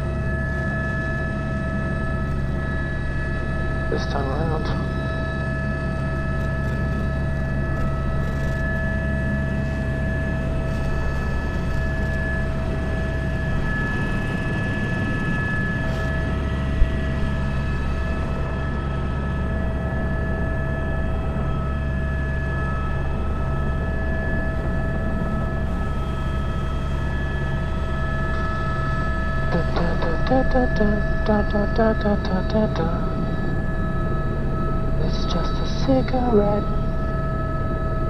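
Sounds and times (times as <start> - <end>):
helicopter engine whine: 0.0 - 38.0
rotor drone: 0.0 - 38.0.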